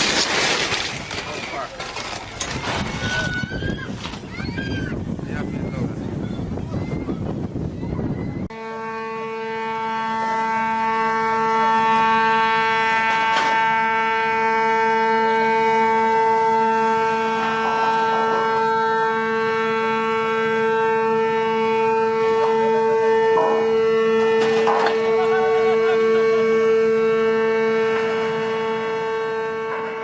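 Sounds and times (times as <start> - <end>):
ship's horn long blast: 8.5 - 30.0.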